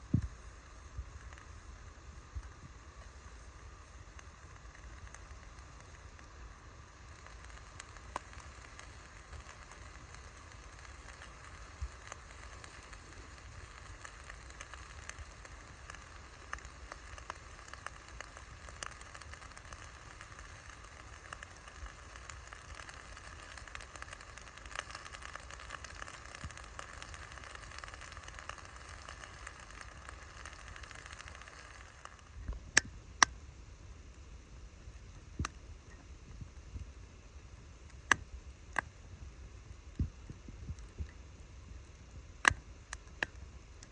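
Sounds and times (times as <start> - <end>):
burning wood popping: 0.0 - 33.4, 34.0 - 43.9
campfire crackling: 0.0 - 43.9.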